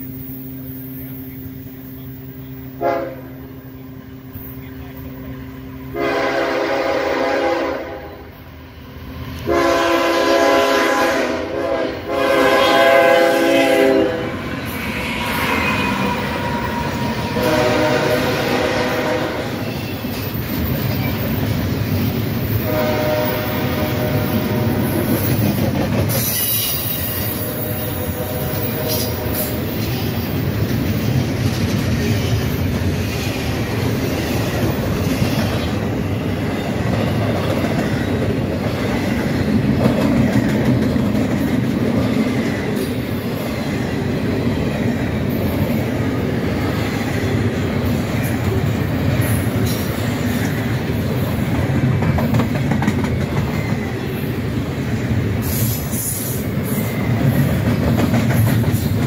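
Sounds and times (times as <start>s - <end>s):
wheel squeal: 0.0s - 2.5s
freight train wheels rumbling: 0.0s - 59.0s
locomotive horn: 1.6s - 3.6s, 5.9s - 8.4s, 9.4s - 20.0s, 22.6s - 25.2s, 27.3s - 29.6s
wheels clacking over rail joints: 28.9s - 43.0s, 51.5s - 53.9s, 56.8s - 59.0s.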